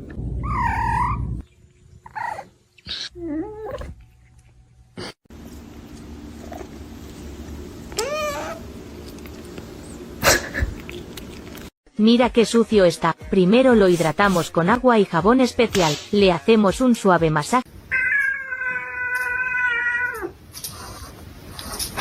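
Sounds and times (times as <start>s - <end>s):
cat meowing: 17.9s - 20.3s.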